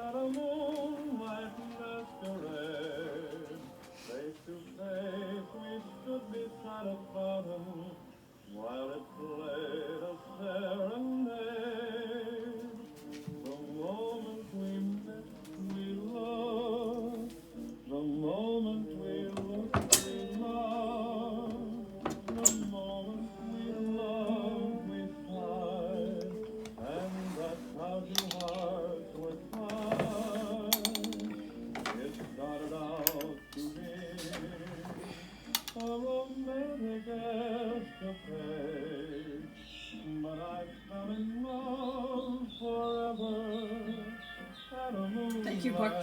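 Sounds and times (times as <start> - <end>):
singer with wide vibrato: 0.0 - 46.0
held accompaniment: 12.4 - 38.8
sharp clicks: 35.5 - 36.0.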